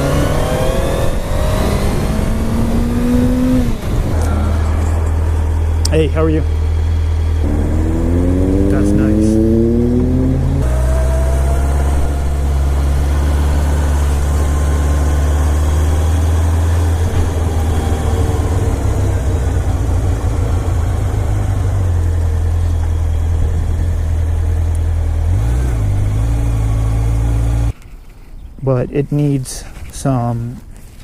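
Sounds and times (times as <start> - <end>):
wind noise rushing: 0.0 - 4.6
motorcycle engine running: 0.0 - 25.3.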